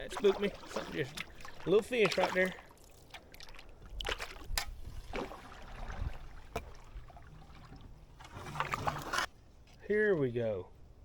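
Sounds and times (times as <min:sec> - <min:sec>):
paddle strokes splashing in water: 0:03.4 - 0:09.3.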